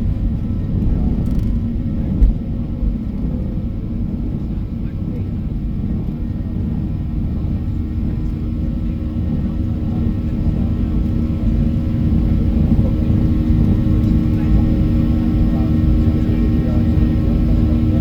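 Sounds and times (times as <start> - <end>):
airplane cabin rumble: 0.0 - 18.0.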